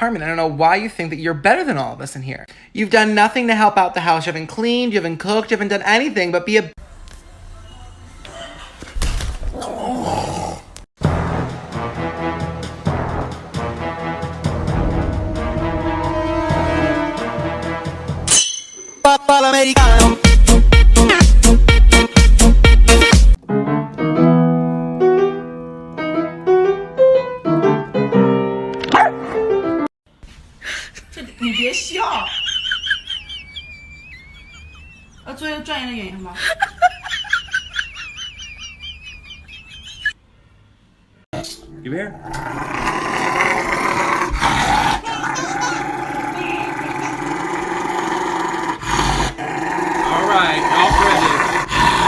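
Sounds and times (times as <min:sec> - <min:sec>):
slow piano chords: 0:23.4 - 0:29.9
dog growling: 0:42.2 - 0:52.0.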